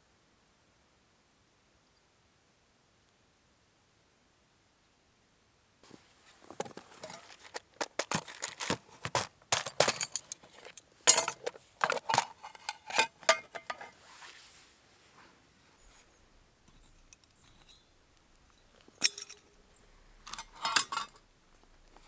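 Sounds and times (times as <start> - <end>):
hard objects clinking and knocking: 6.5 - 14.0, 16.7 - 19.6, 20.2 - 21.2.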